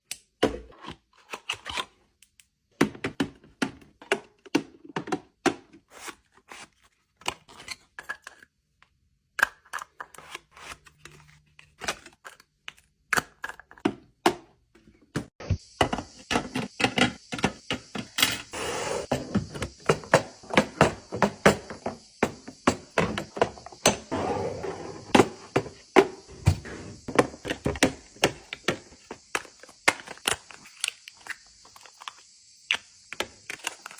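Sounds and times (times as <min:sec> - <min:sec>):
steady hiss: 0:15.5 - 0:33.9.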